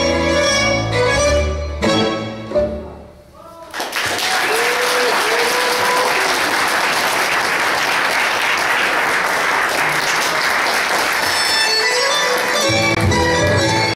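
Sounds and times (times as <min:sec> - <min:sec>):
music playing: 0:00.0 - 0:03.3, 0:10.9 - 0:13.9
audience clapping: 0:03.7 - 0:13.5.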